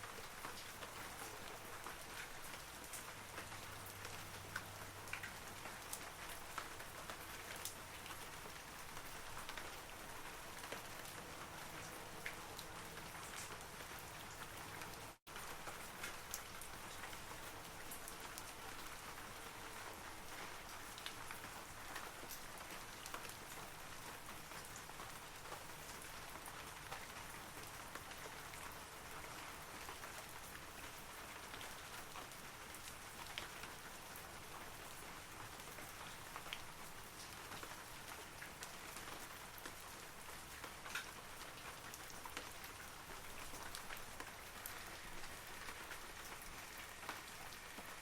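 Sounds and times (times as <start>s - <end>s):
rain falling on trees: 0.0s - 48.0s
louder raindrops: 30.0s - 48.0s.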